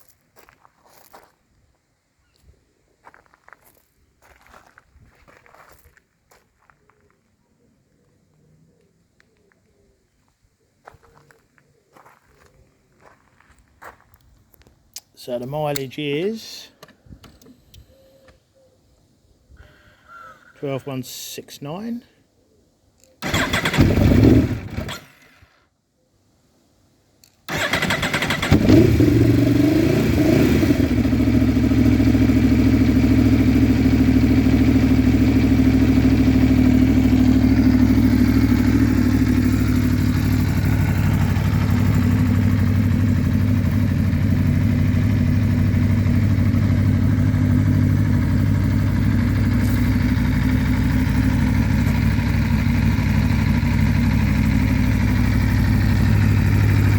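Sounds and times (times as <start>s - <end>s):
motorcycle engine starting and idling: 23.2s - 25.6s, 27.5s - 56.9s.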